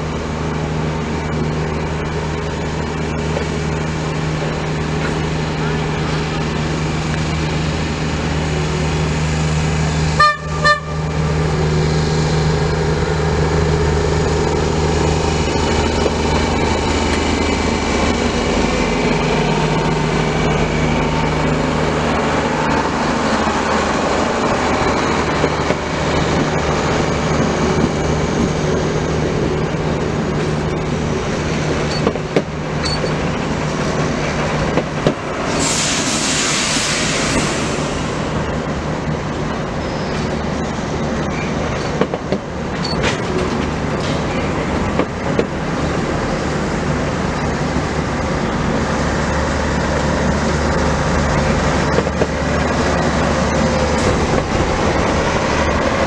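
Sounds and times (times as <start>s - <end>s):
passenger train rumbling past: 0.0s - 56.0s
train horn toots: 10.2s - 11.2s
burst of hiss: 35.5s - 38.3s.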